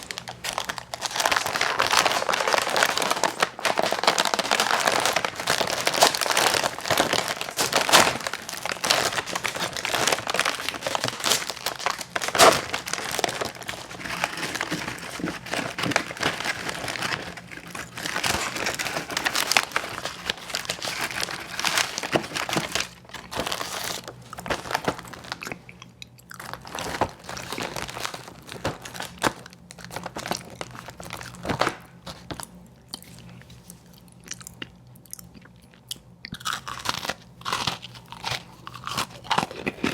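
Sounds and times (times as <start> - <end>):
wrapper crinkling: 0.0 - 32.4
crunching bites and chewing: 0.0 - 39.9.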